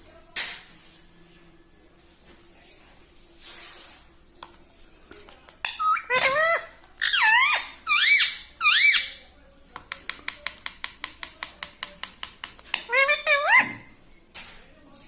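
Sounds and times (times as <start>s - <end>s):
parrot shrill squeaky calls: 5.6s - 9.2s, 12.8s - 13.9s.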